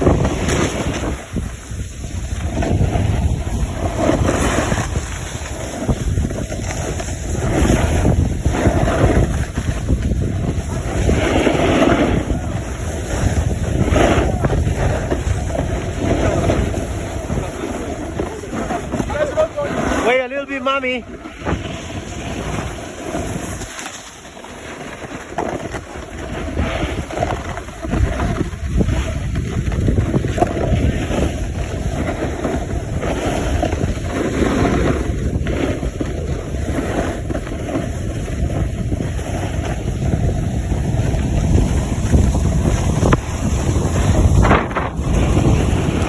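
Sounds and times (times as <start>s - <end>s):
wind buffeting microphone: 0.0s - 24.3s, 25.0s - 46.0s.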